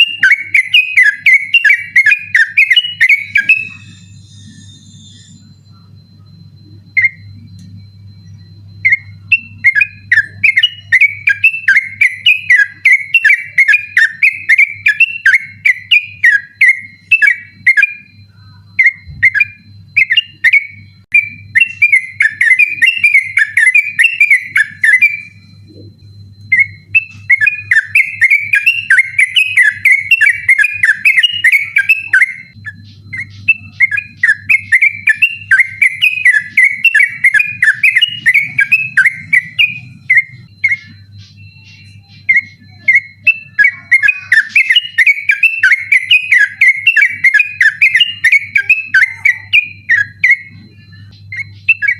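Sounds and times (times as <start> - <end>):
bulbul singing: 0.0 - 51.9
faint low hum: 0.0 - 51.9.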